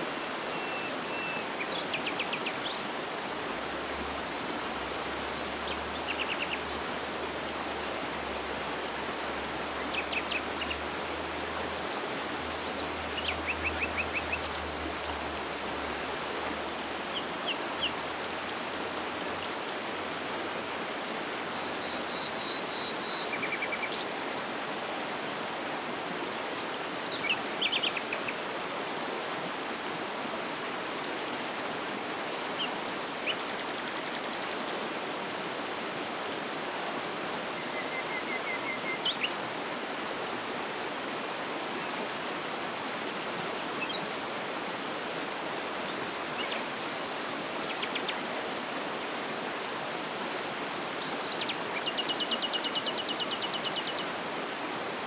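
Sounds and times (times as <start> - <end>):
small birds chirping: 51.0 - 54.1.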